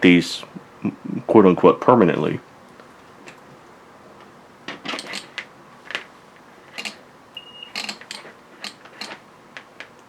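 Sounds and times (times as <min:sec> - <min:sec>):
clips clicking and clattering: 0:04.7 - 0:06.1, 0:06.7 - 0:07.0, 0:07.7 - 0:10.0
short high beep: 0:07.4 - 0:07.8.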